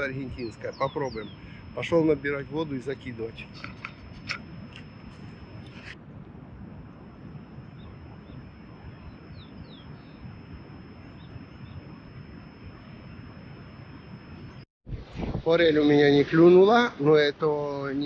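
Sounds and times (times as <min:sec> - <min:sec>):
bird chirps: 0:00.0 - 0:04.1, 0:09.0 - 0:10.4, 0:11.0 - 0:11.9.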